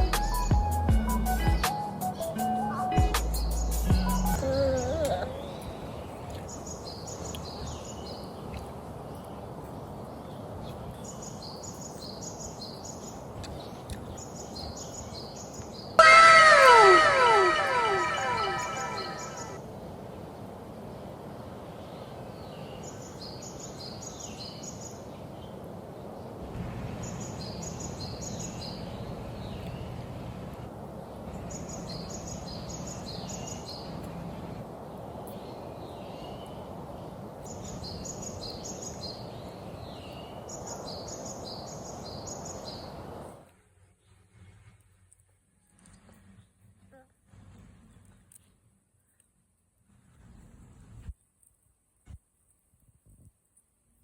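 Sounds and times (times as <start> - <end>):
bird chirping: 3.3 - 9.4, 10.2 - 19.6.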